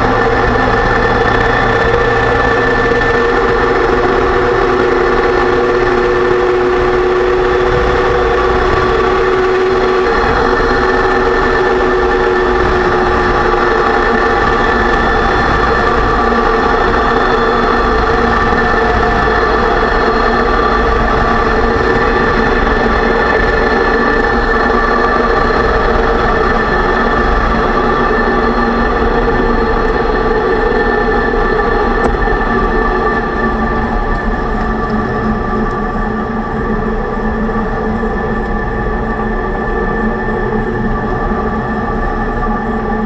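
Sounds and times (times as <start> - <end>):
differential whine: 0.0 - 43.0
drivetrain rumble: 0.0 - 43.0.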